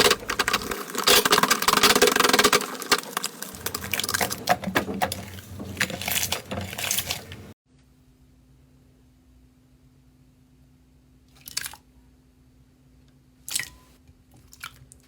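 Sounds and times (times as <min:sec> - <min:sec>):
slime crackling and popping: 0:00.0 - 0:04.6.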